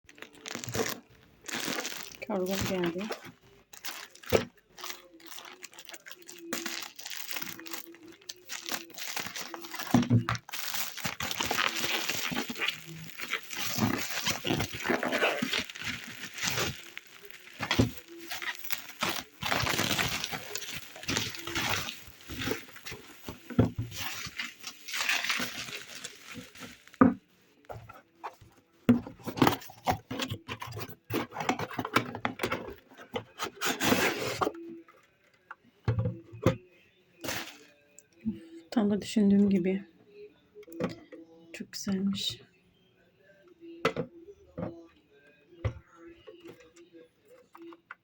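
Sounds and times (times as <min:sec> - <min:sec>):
packaging crinkling: 0:00.1 - 0:27.1, 0:37.2 - 0:37.6.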